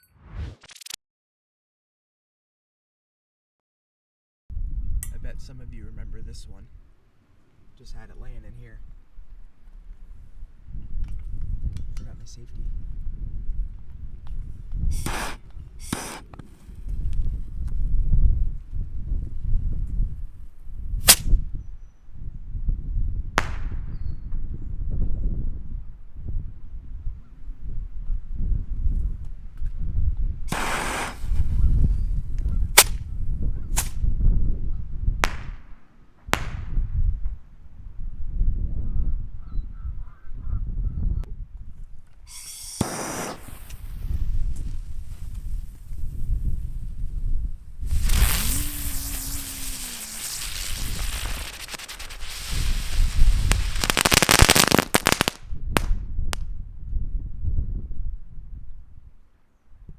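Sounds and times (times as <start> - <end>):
wind rumbling on microphone: 4.5 - 7.0, 7.8 - 59.9
firework bangs: 14.9 - 16.8, 30.5 - 32.0, 32.7 - 33.0, 42.3 - 47.0, 47.8 - 56.0
firework hiss: 14.9 - 16.9, 21.0 - 21.3, 30.5 - 33.0, 33.7 - 34.0, 42.3 - 55.4.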